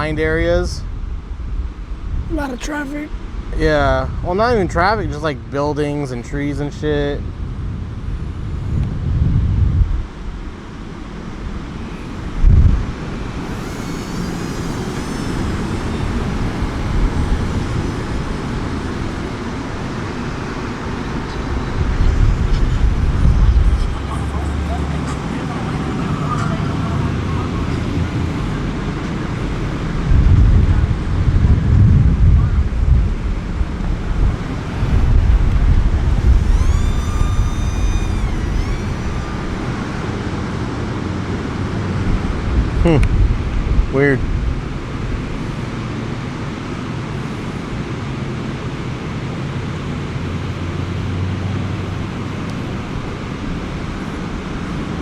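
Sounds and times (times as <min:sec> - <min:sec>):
high electric motor whine: 0:11.6 - 0:29.2, 0:34.4 - 0:41.8.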